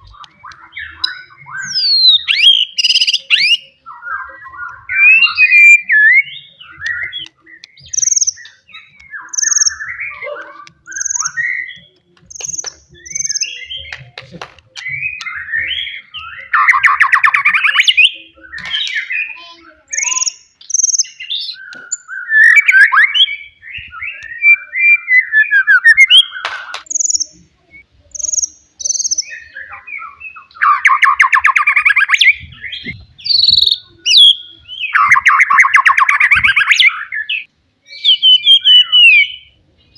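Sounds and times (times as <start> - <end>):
bird singing whistled phrases: 0.1 - 13.9, 14.8 - 39.9.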